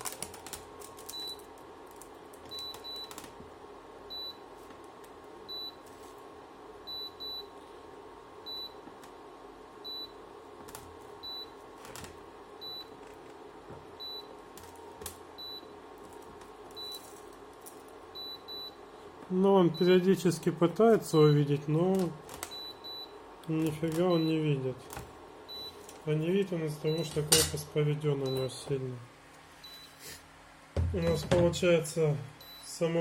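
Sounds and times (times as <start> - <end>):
induction cooktop beeping: 5.4 - 5.9, 6.8 - 7.6, 13.8 - 16.0, 18.1 - 18.8, 19.6 - 20.2, 25.4 - 28.8.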